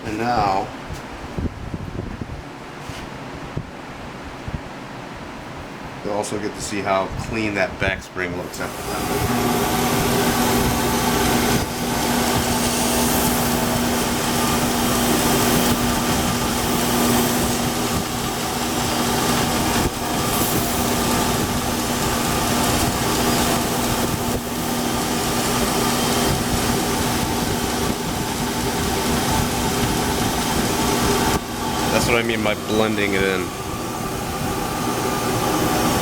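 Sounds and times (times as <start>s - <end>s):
belt grinder grinding metal: 8.6s - 36.0s.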